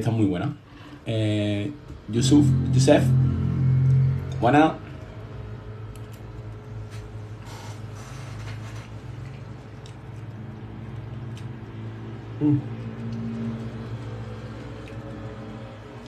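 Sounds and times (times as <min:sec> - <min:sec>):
low hum: 0:02.1 - 0:06.4.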